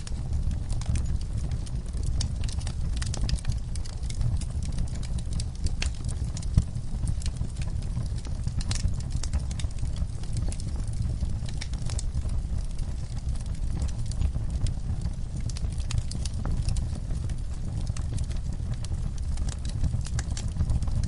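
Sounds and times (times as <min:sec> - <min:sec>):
low rumble of flames: 0:00.0 - 0:21.0
wood fire crackling: 0:00.0 - 0:21.0.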